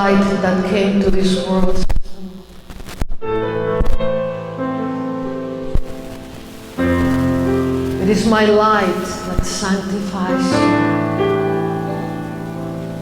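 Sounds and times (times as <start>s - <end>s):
keyboard playing soft chords: 3.4s - 13.0s.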